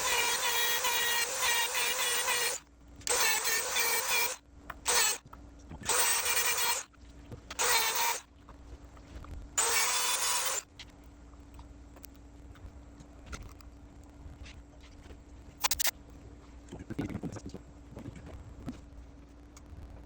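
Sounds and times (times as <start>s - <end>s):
power tool motor whining: 0.0s - 5.2s, 5.8s - 6.9s, 7.6s - 8.2s, 9.6s - 10.6s.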